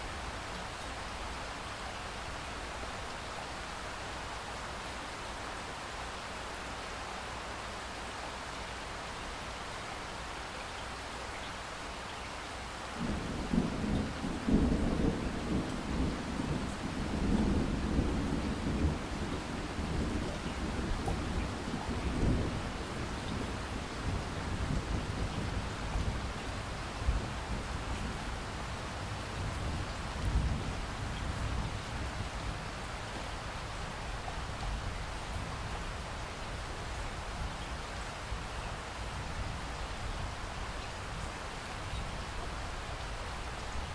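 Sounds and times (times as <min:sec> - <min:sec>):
rain hiss: 0:00.0 - 0:43.9
rolling thunder rumble: 0:13.0 - 0:32.8.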